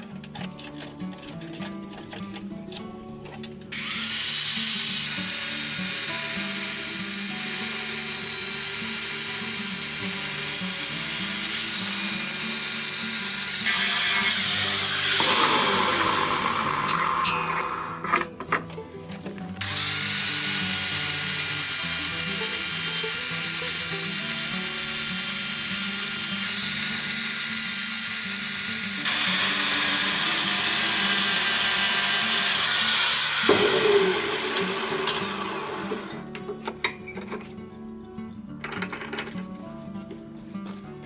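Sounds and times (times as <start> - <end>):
background music: 0.0 - 41.0
power tool whining: 3.7 - 18.5, 19.6 - 36.4.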